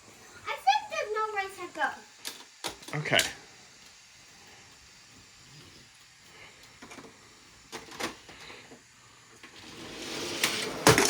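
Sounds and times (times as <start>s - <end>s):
toy cars rolling down track: 9.4s - 11.0s.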